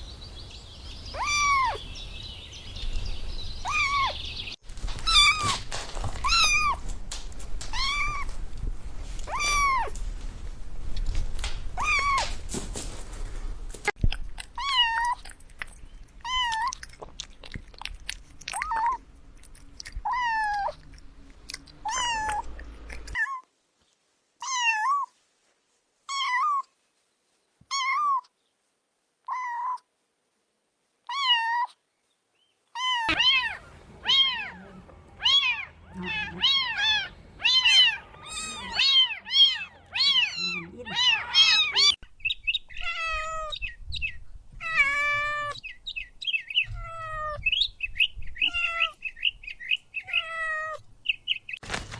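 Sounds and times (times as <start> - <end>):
kittens meowing: 1.1 - 1.9, 3.6 - 4.2, 5.0 - 5.6, 6.2 - 6.8, 7.7 - 8.3, 9.2 - 10.0, 11.8 - 12.3, 21.8 - 23.4, 32.8 - 42.0, 42.7 - 43.7, 44.6 - 45.7, 46.6 - 47.6, 48.4 - 49.0, 50.0 - 50.8.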